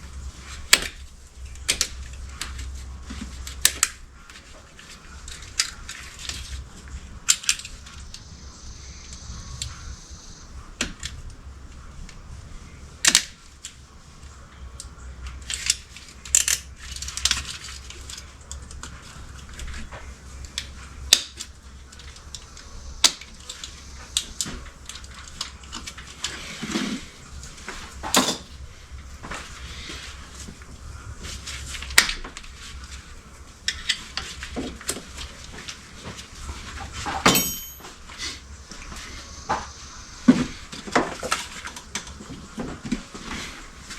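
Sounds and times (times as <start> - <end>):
low steady hum: 0.0 - 43.9
metallic clinks of hand tools: 37.2 - 38.0
struck metal ringing: 37.2 - 38.0.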